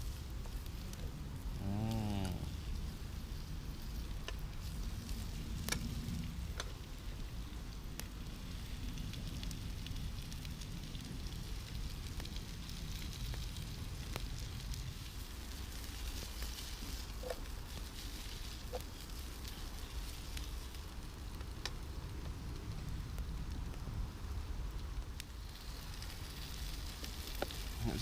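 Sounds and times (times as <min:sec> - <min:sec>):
food sizzling: 0:00.0 - 0:07.2
campfire crackling and popping: 0:00.0 - 0:28.0.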